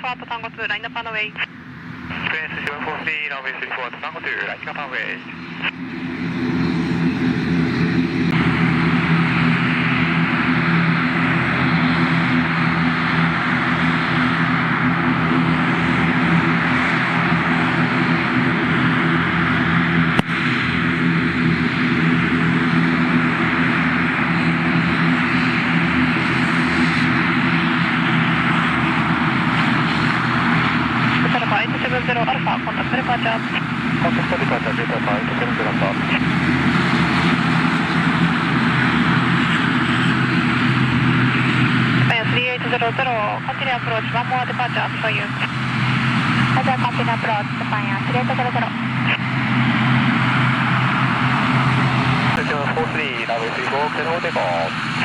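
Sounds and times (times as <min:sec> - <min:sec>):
aircraft engines running: 0:00.0 - 0:55.0.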